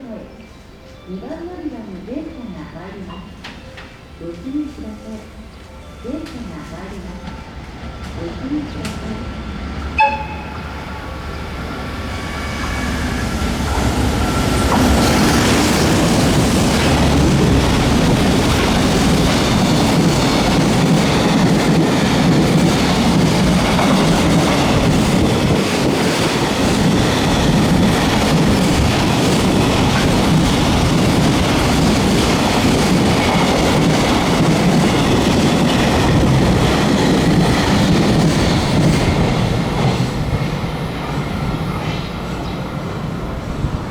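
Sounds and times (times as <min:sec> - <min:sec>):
freight train rumble: 0:02.0 - 0:43.9
train wheels clattering: 0:11.8 - 0:42.4.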